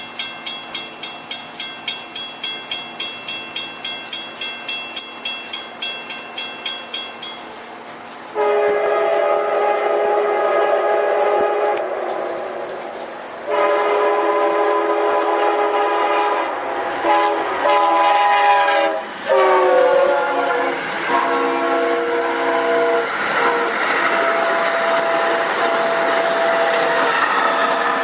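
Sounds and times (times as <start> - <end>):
passing train rumble and hiss: 0.0 - 28.0
locomotive air horn blasts: 8.4 - 12.7, 13.5 - 28.0.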